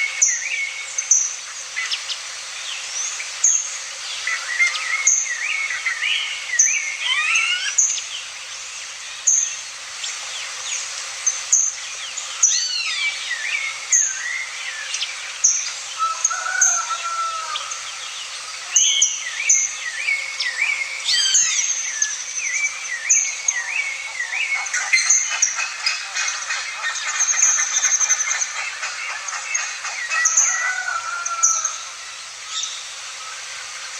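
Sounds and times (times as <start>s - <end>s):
birds chirping and whistling: 11.6s - 33.0s.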